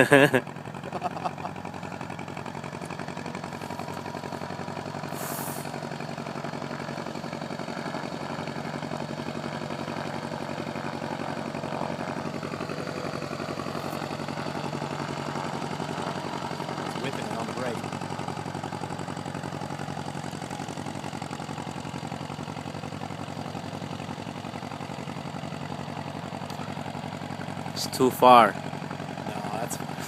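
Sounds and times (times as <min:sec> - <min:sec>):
aircraft engine idling: 0:00.0 - 0:30.0
brief hiss: 0:05.1 - 0:05.7.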